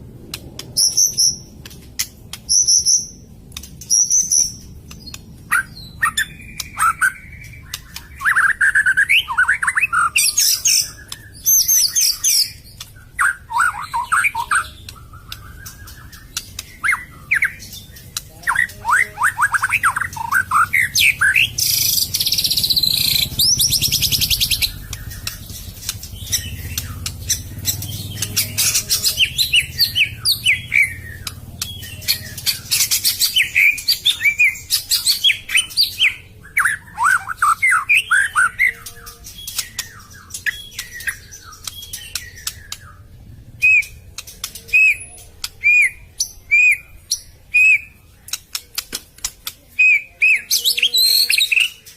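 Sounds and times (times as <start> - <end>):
bird singing whistled phrases: 3.9 - 25.5, 28.1 - 44.0, 49.8 - 51.8
high buzzy bird trill: 5.5 - 44.0.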